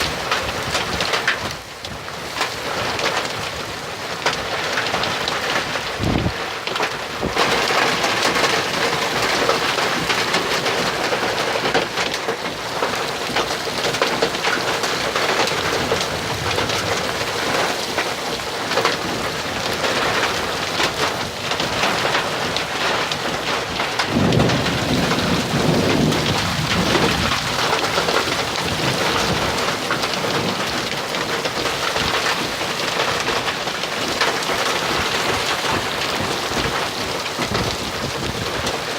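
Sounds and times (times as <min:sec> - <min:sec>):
heavy rain: 0:00.0 - 0:38.9
thunder rumble: 0:15.1 - 0:17.6, 0:23.4 - 0:30.7.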